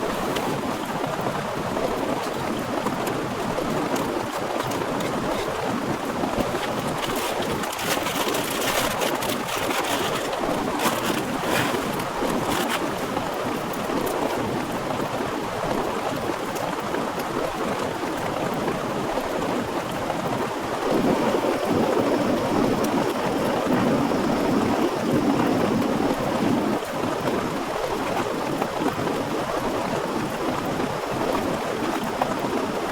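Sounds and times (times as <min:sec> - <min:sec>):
raindrops pattering close by: 0:00.0 - 0:32.9
heavy rain pouring: 0:20.6 - 0:32.9.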